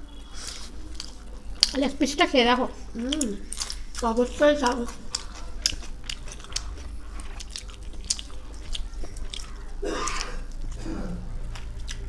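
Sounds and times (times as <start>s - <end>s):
person chewing food: 0.3s - 1.8s, 2.9s - 12.0s.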